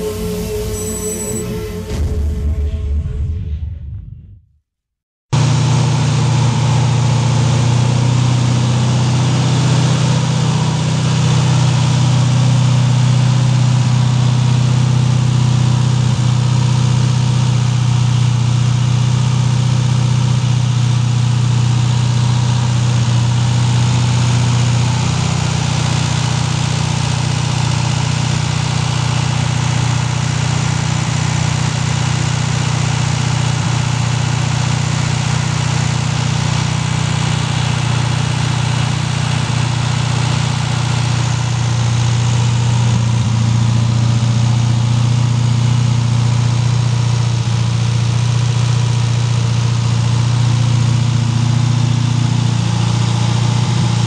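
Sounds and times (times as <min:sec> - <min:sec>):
car engine idling: 0:05.4 - 0:54.0.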